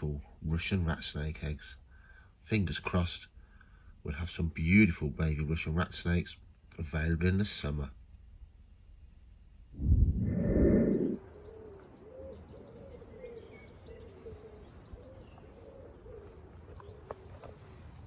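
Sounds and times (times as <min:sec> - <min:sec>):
loud low rumbling: 0:09.7 - 0:11.2
bird low rising and falling call: 0:09.8 - 0:18.0.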